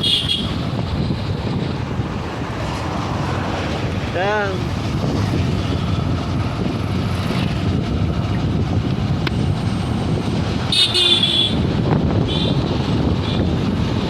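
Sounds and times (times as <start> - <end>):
vehicle horn tooting: 0.0 - 0.6, 10.7 - 11.7, 12.3 - 12.6
traffic rumble: 0.0 - 14.0.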